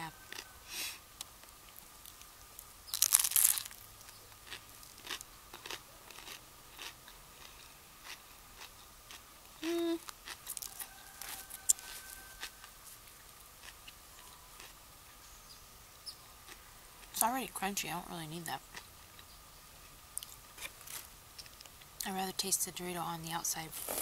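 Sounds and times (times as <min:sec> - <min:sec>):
crunching bite into sandwich: 0:02.9 - 0:09.2
quiet chewing with clicks: 0:04.0 - 0:14.8, 0:20.1 - 0:22.1.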